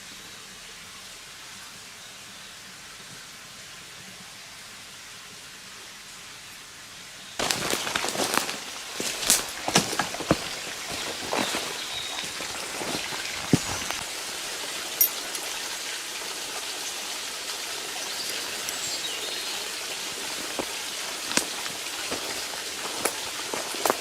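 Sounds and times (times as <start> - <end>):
raindrops ticking: 7.4 - 14.1, 14.7 - 16.7, 17.9 - 24.0
rain hissing: 7.4 - 24.0.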